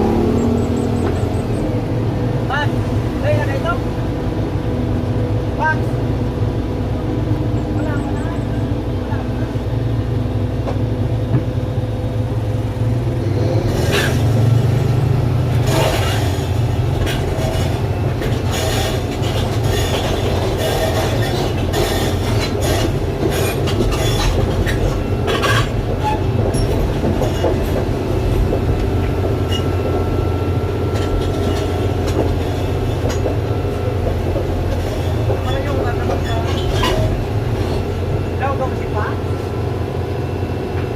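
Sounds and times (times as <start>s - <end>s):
diesel engine running: 0.0s - 40.9s
steel tracks clanking: 0.0s - 40.9s.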